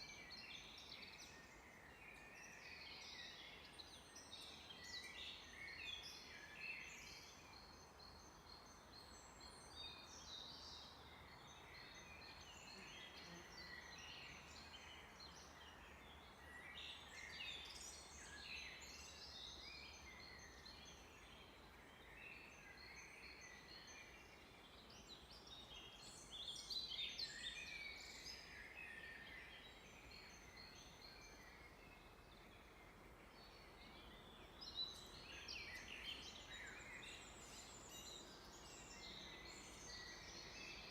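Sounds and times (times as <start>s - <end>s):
low steady hiss: 0.0s - 40.9s
songbirds chirping: 0.0s - 40.9s.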